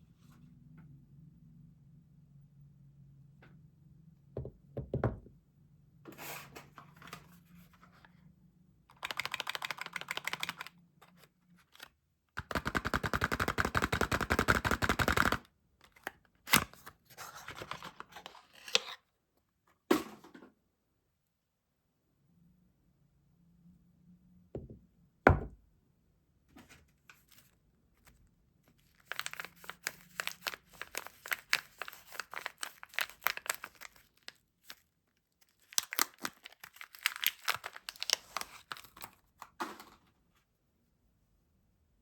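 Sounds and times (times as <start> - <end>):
dull thump: 24.6 - 25.6
packaging crinkling: 28.8 - 39.2.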